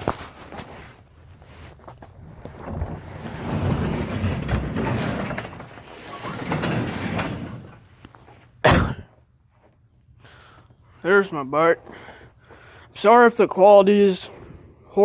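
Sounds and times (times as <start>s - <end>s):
door sliding with rumbling scrape: 2.1s - 8.3s.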